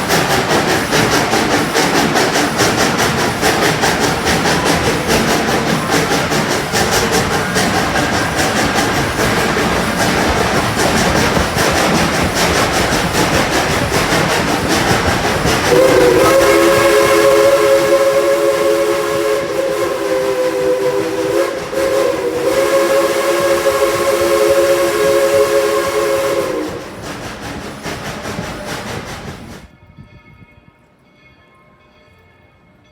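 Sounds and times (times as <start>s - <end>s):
steam train rolling clatter: 0.0s - 31.0s
steam whistle chord: 15.6s - 27.0s.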